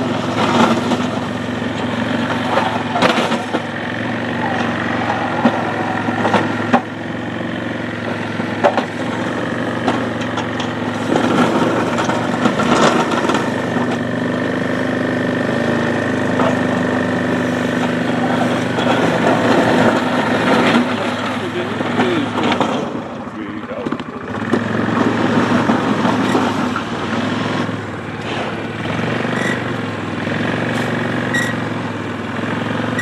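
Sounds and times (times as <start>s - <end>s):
atv engine running: 0.0s - 33.0s
sharp clicks and knocks: 8.6s - 9.1s, 23.8s - 26.9s.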